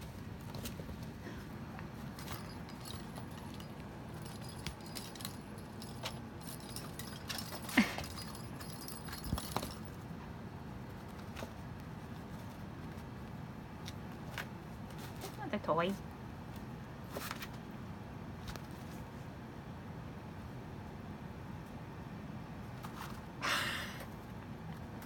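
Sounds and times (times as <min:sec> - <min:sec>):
light clicks and jingling: 0:02.0 - 0:10.0.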